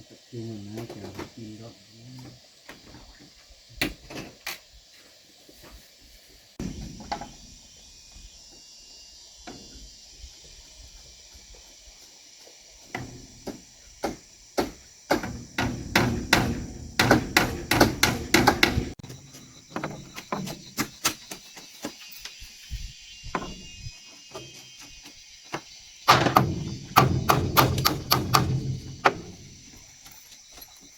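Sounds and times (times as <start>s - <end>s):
steady high hiss: 0.0s - 30.9s
hammering on wood: 12.9s - 19.0s, 26.1s - 29.6s.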